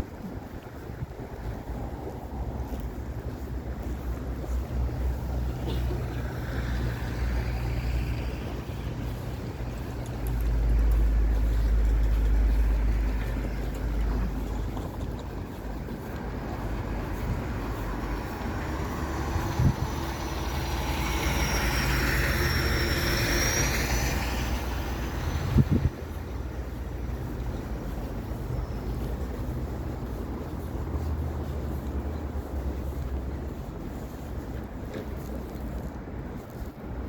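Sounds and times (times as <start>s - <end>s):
street traffic rumbling: 0.0s - 37.0s
vehicle passing with high whine: 16.0s - 34.5s.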